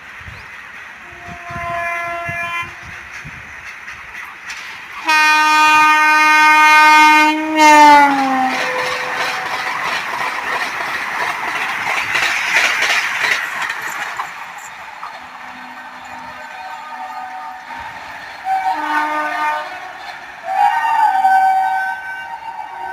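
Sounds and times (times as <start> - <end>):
train rushing and wheel clatter: 0.0 - 22.9
loud train horn: 1.0 - 3.0, 5.0 - 9.6, 15.4 - 22.9.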